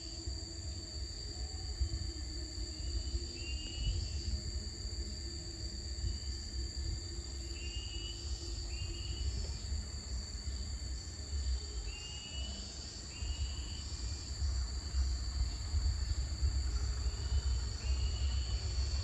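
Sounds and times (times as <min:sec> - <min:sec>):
insect chorus drone: 0:00.0 - 0:19.0
wind rumbling on microphone: 0:13.1 - 0:19.0.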